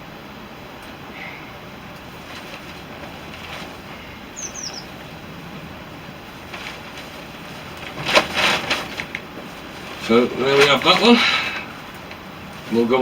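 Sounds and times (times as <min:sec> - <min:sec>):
wind: 0:00.0 - 0:13.0
bird chirping: 0:02.8 - 0:05.6.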